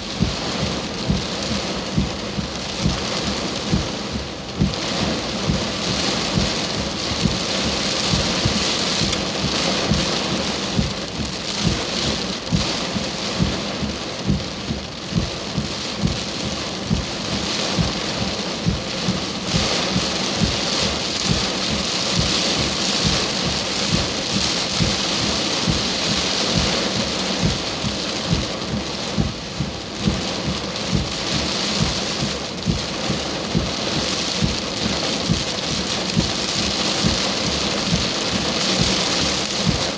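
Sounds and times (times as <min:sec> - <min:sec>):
heavy rain hissing: 0:00.0 - 0:39.9
raindrops thudding on hard surface: 0:00.0 - 0:39.9.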